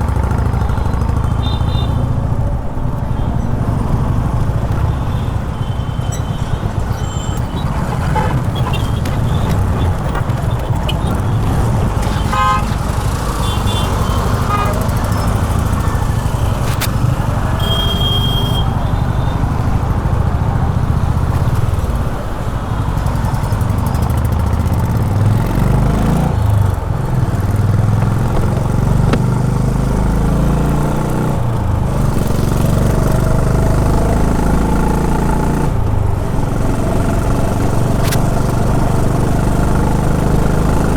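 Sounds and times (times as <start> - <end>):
vehicle horn honking: 0.6 - 2.2, 10.8 - 15.9, 17.5 - 19.4
motorcycle engine revving: 6.7 - 17.6, 23.6 - 40.9.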